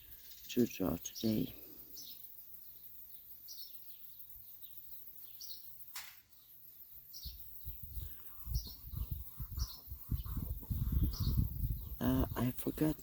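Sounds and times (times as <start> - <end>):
songbird chirping: 0.0 - 13.0
wind buffeting microphone: 7.2 - 13.0.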